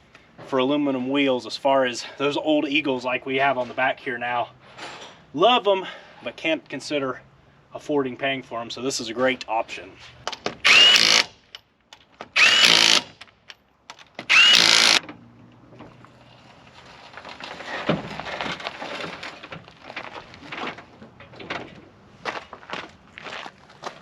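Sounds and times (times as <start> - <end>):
impact wrench whirring: 10.6 - 11.3, 12.3 - 13.2, 14.2 - 15.0
handling and rustling: 15.8 - 23.0.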